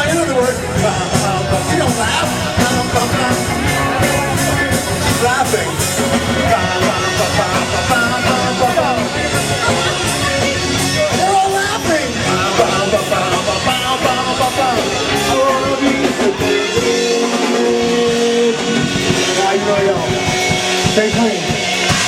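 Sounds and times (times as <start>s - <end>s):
live rock band with singing: 0.0s - 22.0s.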